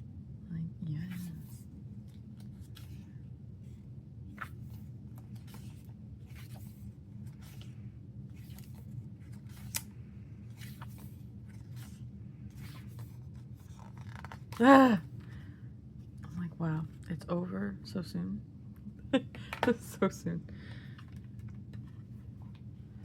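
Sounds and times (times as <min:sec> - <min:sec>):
low room hum: 0:00.0 - 0:23.0
photobook pages turning: 0:01.1 - 0:03.1, 0:04.3 - 0:14.8.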